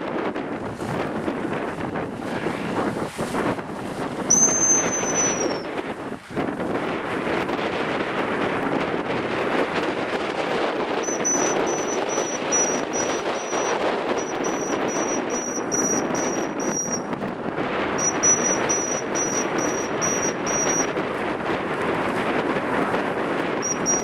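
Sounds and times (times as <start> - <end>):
strong wind rushing: 0.0 - 24.0
short high-pitched chirps: 4.3 - 5.6, 11.0 - 17.1, 18.0 - 21.0, 23.6 - 24.0.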